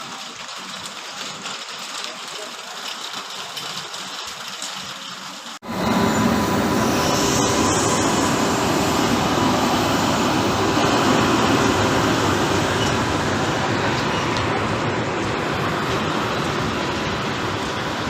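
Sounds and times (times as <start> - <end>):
train wheels rumbling on track: 5.6 - 18.0.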